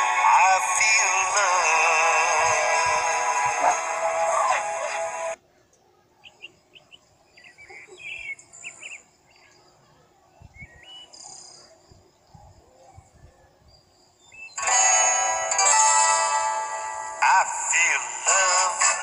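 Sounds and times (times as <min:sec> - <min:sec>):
song with singing: 0:00.0 - 0:05.4, 0:14.6 - 0:19.0
faint bird chirps: 0:05.4 - 0:14.6.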